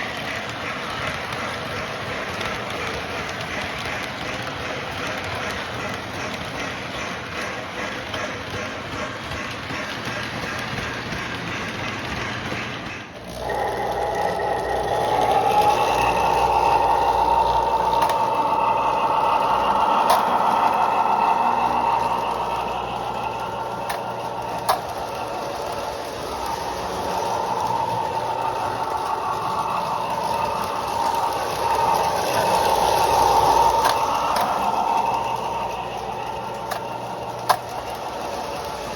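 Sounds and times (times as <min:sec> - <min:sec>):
rattling wheels: 0:00.0 - 0:38.9
model train motor whine: 0:13.2 - 0:38.9.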